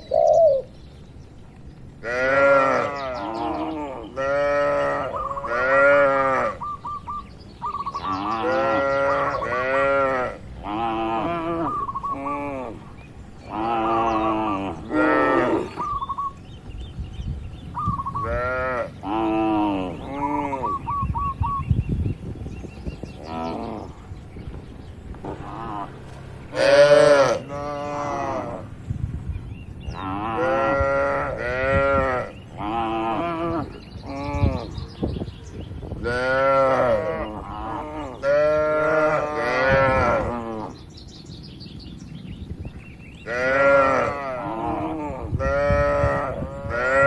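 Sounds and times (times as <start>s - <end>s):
cattle mooing: 2.0s - 6.6s, 13.5s - 15.8s, 25.3s - 28.7s, 36.1s - 40.8s, 43.3s - 47.0s.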